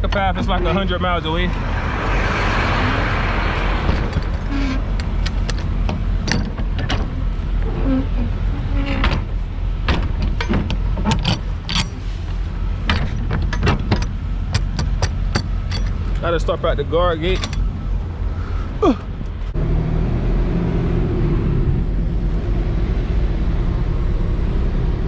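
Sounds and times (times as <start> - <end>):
clicks and rattles in cab: 0.0 - 1.3, 3.8 - 7.7, 8.3 - 17.9
truck engine hum: 0.0 - 25.0.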